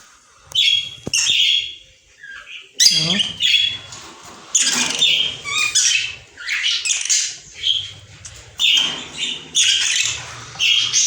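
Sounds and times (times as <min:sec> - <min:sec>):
budgerigars squawking: 0:02.3 - 0:04.0, 0:04.6 - 0:11.0.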